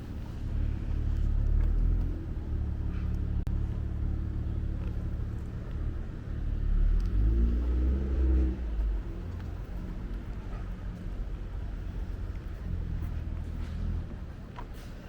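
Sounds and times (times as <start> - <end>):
street traffic engine hum: 0.0 - 15.0
vehicle passing close by: 5.9 - 10.7.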